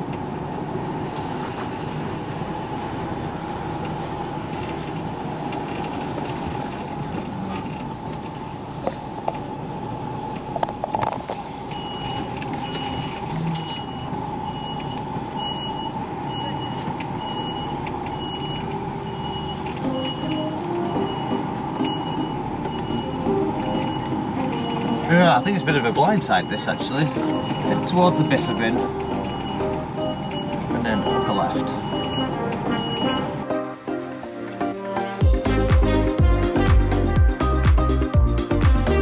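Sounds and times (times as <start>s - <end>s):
lorry engine droning: 0.0s - 39.0s
reversing alarm beeping: 11.6s - 33.8s.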